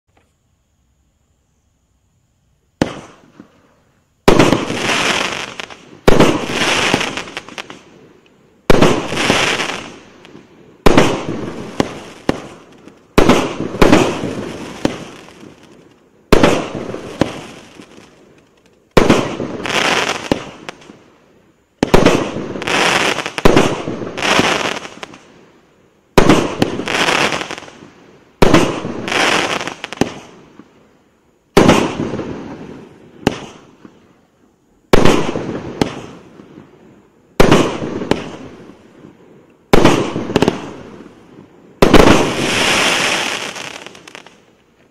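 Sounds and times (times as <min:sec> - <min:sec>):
fireworks cake firing bangs: 0:02.8 - 0:03.5, 0:04.2 - 0:07.8, 0:08.7 - 0:10.0, 0:10.8 - 0:20.9, 0:21.8 - 0:25.2, 0:26.2 - 0:30.4, 0:31.6 - 0:32.6, 0:33.2 - 0:33.9, 0:34.9 - 0:36.3, 0:37.4 - 0:38.7, 0:39.7 - 0:41.1, 0:41.8 - 0:44.4.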